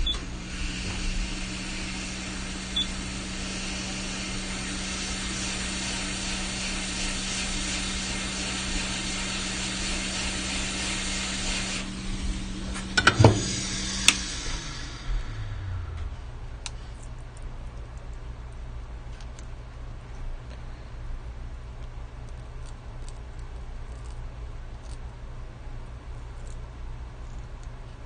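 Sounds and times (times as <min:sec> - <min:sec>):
hot air hissing: 0:00.0 - 0:16.9
low fan hum: 0:00.0 - 0:28.0.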